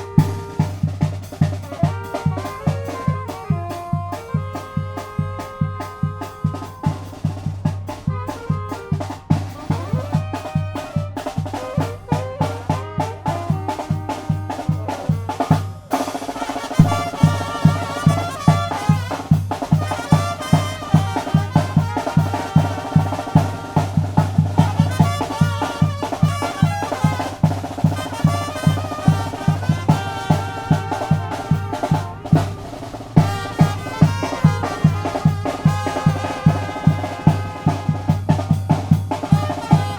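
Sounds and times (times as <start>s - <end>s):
bass drum beat: 0.0s - 1.8s, 16.8s - 39.9s
brass band melody: 0.0s - 39.9s
snare drum: 0.0s - 39.9s.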